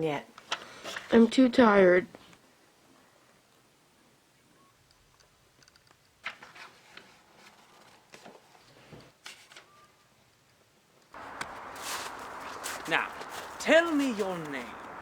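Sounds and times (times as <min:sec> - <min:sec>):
faint clicks: 0:11.0 - 0:13.6
faint rustles: 0:11.2 - 0:15.0.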